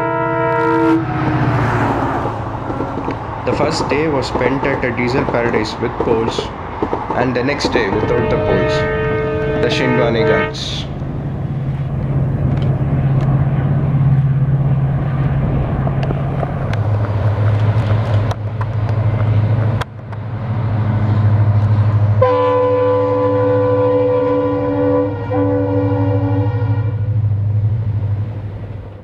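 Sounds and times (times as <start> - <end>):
locomotive horn blast: 0.0 - 2.0, 8.0 - 11.0, 22.2 - 27.2
locomotive engine throbbing: 0.0 - 29.0.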